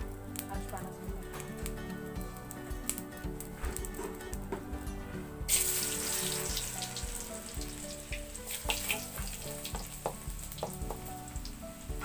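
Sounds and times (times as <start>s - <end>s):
garlic sizzling in hot oil: 5.4s - 12.0s.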